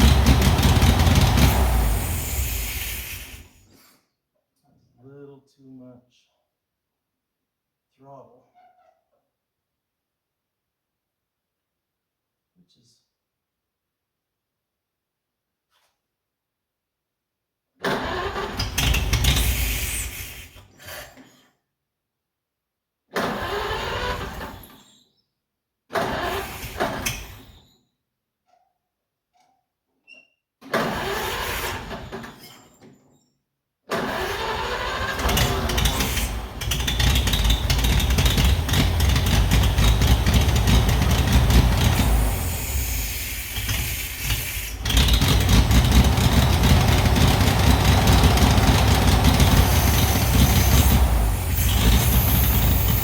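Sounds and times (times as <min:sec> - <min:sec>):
tractor engine cranking: 0:00.0 - 0:03.4, 0:17.9 - 0:19.9, 0:23.2 - 0:24.6, 0:26.0 - 0:27.2, 0:30.7 - 0:32.2, 0:33.9 - 0:53.0
tractor engine running rough: 0:00.0 - 0:03.4, 0:34.0 - 0:53.0.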